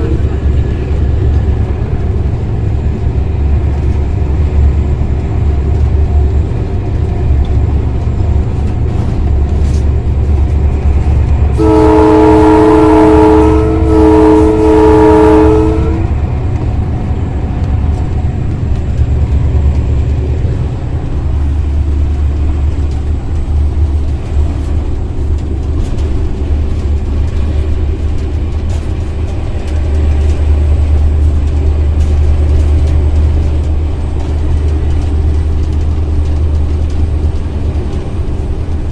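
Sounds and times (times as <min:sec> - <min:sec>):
two-tone locomotive horn: 0:00.0 - 0:00.6, 0:11.5 - 0:16.3
diesel locomotive drone: 0:00.0 - 0:38.9.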